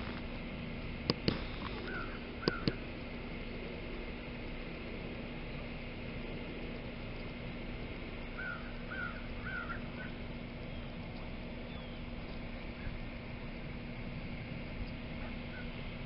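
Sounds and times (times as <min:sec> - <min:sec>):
low hum: 0:00.0 - 0:16.0
outdoor background noise: 0:00.0 - 0:16.0
bird calling: 0:01.2 - 0:02.9, 0:08.2 - 0:13.1, 0:15.1 - 0:16.0.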